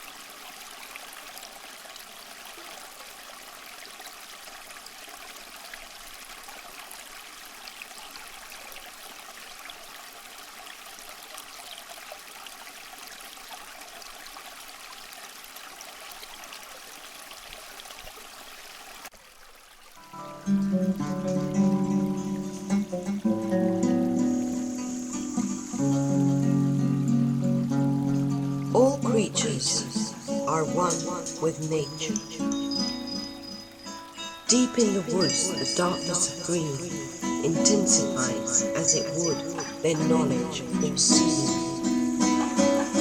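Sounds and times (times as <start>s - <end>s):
running water trickling: 0.0s - 43.0s
acoustic guitar music: 20.0s - 43.0s.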